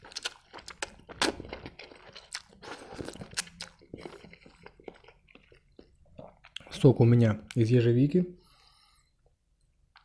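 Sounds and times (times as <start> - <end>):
wet chewing with mouth clicks: 0.0 - 6.7.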